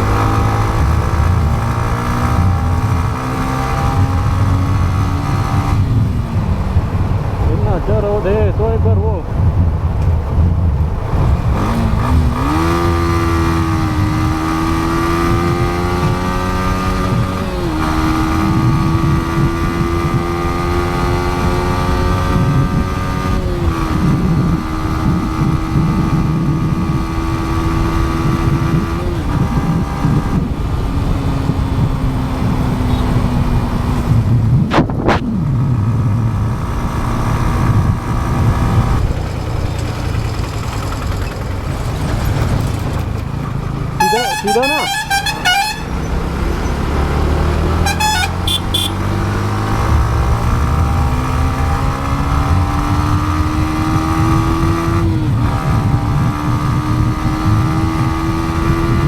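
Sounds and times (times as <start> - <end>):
wind buffeting microphone: 0.0 - 44.0, 48.9 - 59.0
motorcycle engine accelerating: 0.0 - 59.0.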